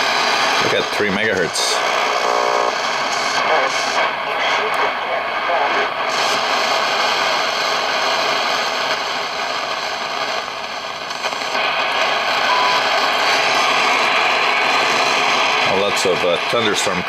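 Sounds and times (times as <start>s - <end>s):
faint radio carrier tones: 0.0s - 17.0s
radio static hiss: 0.0s - 17.0s
short radio tone: 12.2s - 13.6s.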